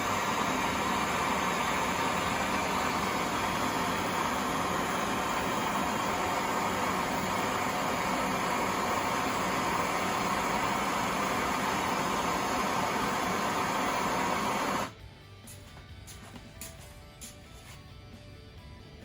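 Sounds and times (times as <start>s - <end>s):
gas torch flame hissing: 0.0s - 15.0s.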